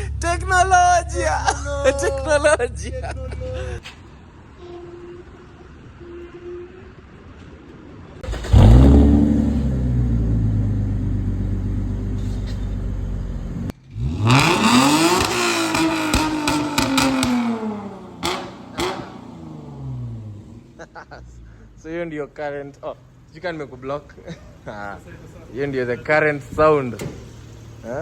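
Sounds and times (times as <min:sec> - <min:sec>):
car engine revving: 0:08.2 - 0:21.0.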